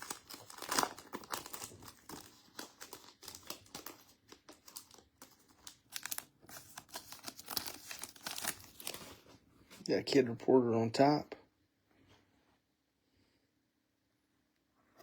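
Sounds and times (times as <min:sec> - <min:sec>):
wrapper torn and crinkled: 0:00.0 - 0:09.2.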